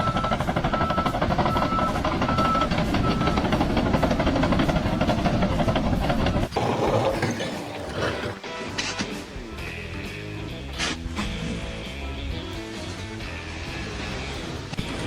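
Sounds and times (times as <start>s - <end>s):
rapid mechanical clatter: 0.0s - 8.4s.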